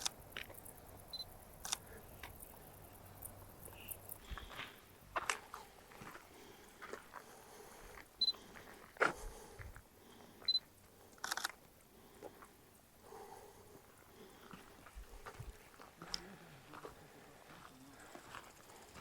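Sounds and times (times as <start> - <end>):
crunching and clicking handling noise: 0.0 - 6.1.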